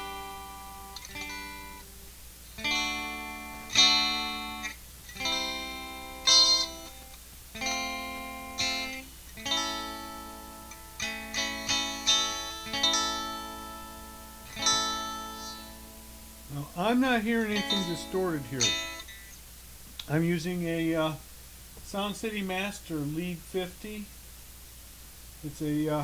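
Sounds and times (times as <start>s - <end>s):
electric ukulele strumming chords: 0.0s - 19.1s.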